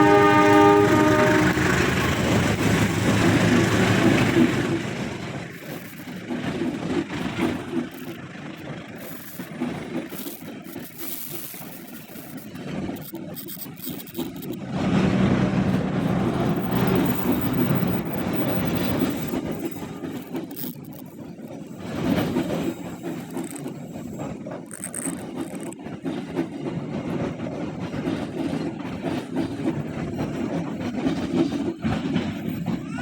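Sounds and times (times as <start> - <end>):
train wheels rumbling on track: 0.0 - 33.0.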